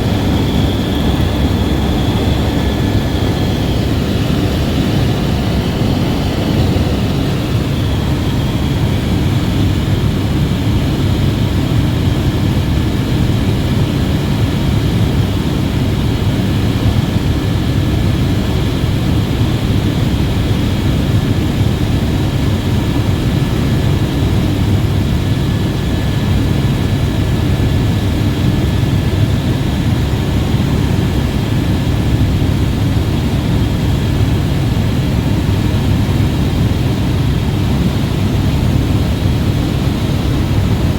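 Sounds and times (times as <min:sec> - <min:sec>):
faint high whine: 0:00.0 - 0:10.2
helicopter rotor and turbine drone: 0:00.0 - 0:40.9.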